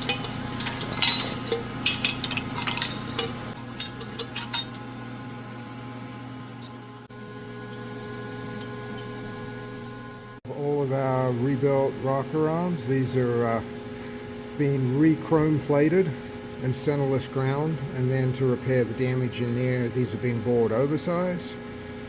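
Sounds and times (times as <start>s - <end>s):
metal tools clinking: 0.0s - 4.8s
steady low hum: 0.0s - 22.0s.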